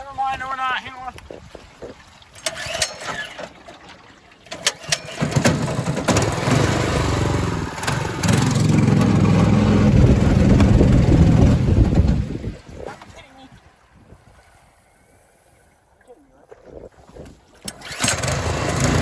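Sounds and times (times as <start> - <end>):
boat engine revving: 0.0 - 13.2, 17.6 - 19.0.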